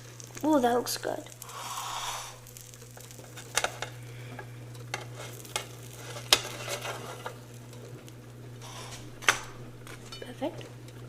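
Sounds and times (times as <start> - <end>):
light sizzle: 0.0 - 11.0
steady low hum: 0.0 - 11.0
spatula clicking and scraping: 1.3 - 8.0.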